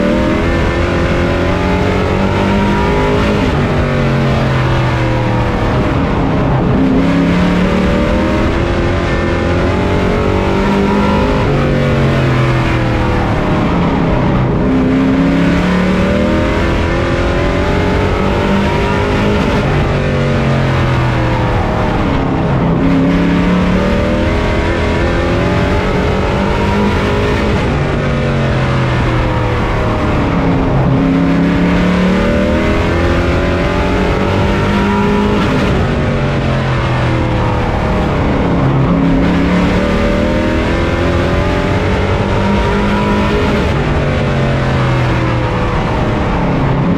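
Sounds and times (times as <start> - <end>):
race truck engine revving: 0.0 - 46.9
road and wind noise: 0.0 - 46.9.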